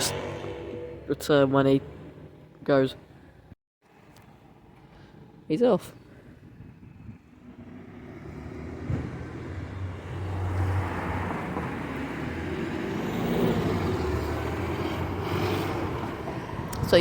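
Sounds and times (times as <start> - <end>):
bus engine pulling away: 7.3 - 17.0.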